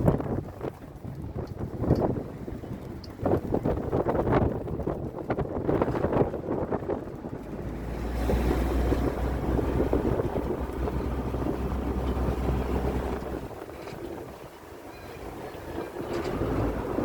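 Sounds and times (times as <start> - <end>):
boat engine: 0.0 - 17.0
heavy low rumble: 0.0 - 17.0
wind buffeting microphone: 0.0 - 17.0
water rushing: 7.0 - 17.0.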